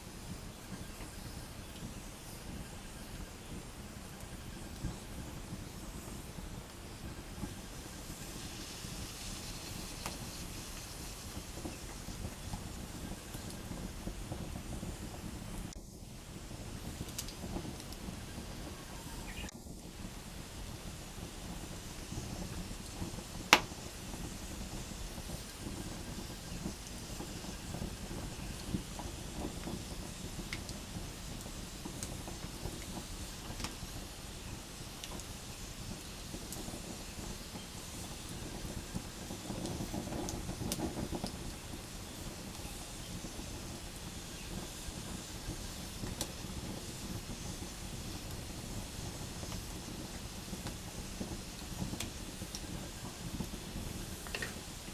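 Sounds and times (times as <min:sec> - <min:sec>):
campfire burning: 0:00.0 - 0:54.9
fire crackling: 0:00.0 - 0:54.9
loud sharp pop of burning wood: 0:22.1 - 0:24.4, 0:46.0 - 0:54.9.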